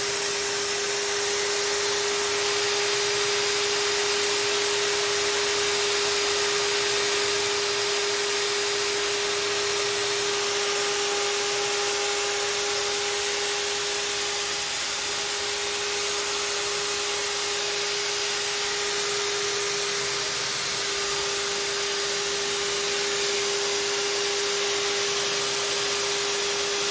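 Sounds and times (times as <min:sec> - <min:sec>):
core drill motor whine: 0:00.0 - 0:26.9.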